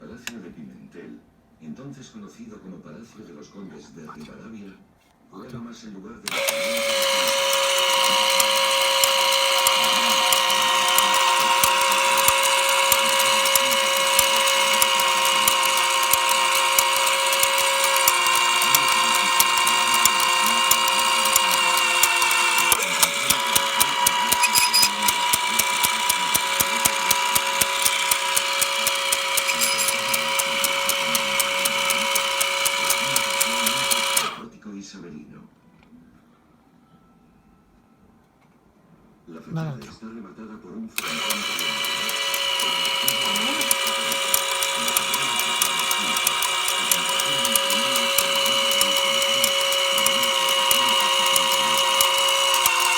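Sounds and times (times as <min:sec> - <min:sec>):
motor whine: 0:06.3 - 0:34.4, 0:41.0 - 0:52.9
ratchet-like clicking: 0:06.3 - 0:34.4, 0:41.0 - 0:52.9.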